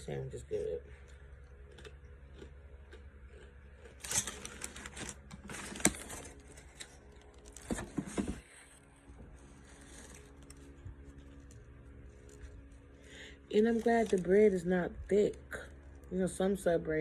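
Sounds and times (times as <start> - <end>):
sandwich wrapper rustling: 3.8 - 8.1, 8.7 - 14.7.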